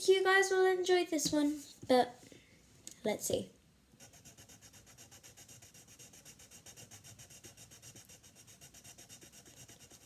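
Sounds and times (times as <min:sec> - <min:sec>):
pencil scribbling on paper: 0:04.0 - 0:10.0.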